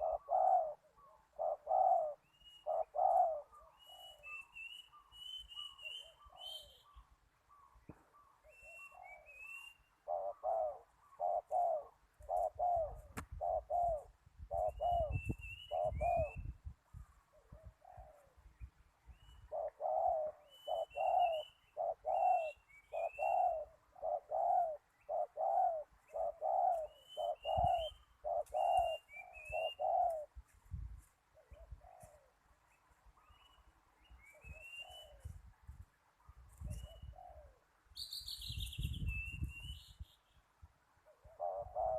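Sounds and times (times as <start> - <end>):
doves cooing: 0.0 - 18.4, 19.4 - 30.4, 31.2 - 32.5, 36.6 - 37.8, 41.0 - 41.9
small birds chirping: 0.0 - 41.9.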